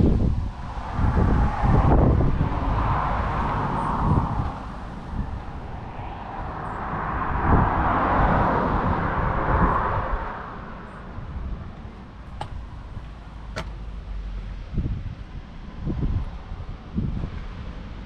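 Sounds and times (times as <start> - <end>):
wind gusting on microphone: 0.0 - 18.0
tyre noise: 11.8 - 14.1.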